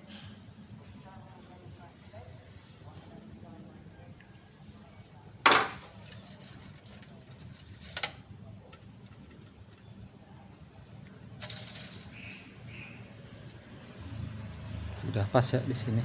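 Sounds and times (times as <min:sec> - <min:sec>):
scraping rustle: 0:04.3 - 0:09.8, 0:11.4 - 0:12.6.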